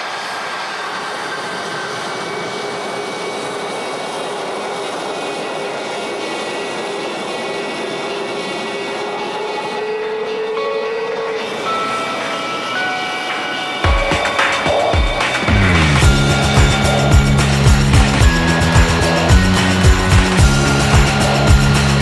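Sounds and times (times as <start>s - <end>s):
engine drone: 0.0s - 22.0s
high whining tones: 0.0s - 22.0s
dense rushing noise: 13.9s - 22.0s.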